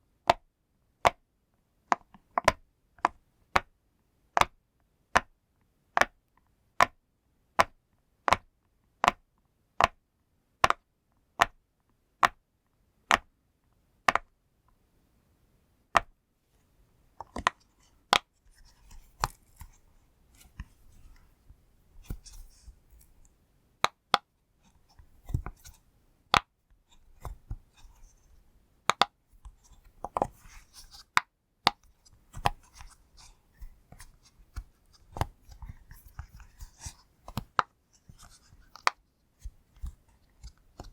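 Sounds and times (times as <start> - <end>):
rustling and handling of toy: 16.5 - 23.3, 29.3 - 31.2, 31.8 - 40.9.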